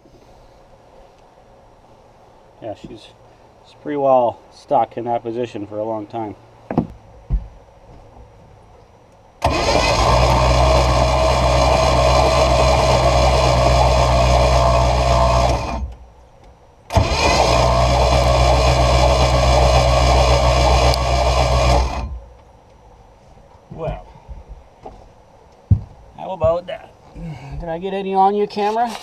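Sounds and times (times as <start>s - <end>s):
starter motor cranking engine: 9.4s - 16.0s, 16.9s - 22.3s.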